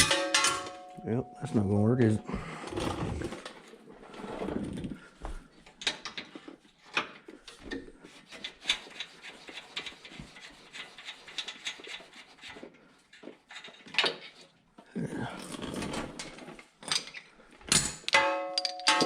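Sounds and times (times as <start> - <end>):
hand tools on metal parts: 0.0 - 3.3, 6.9 - 12.5, 16.8 - 19.0.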